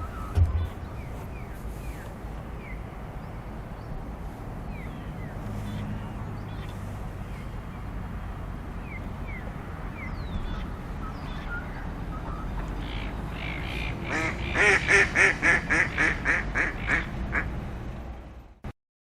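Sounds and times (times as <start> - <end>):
wind rumble on microphone: 0.0 - 14.0
small birds chirping: 0.0 - 14.7
duck quacking: 13.6 - 17.5.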